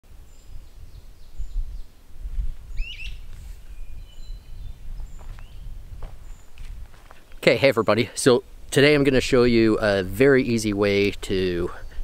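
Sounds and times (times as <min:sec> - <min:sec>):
birds chirping and calling: 0:02.7 - 0:08.1.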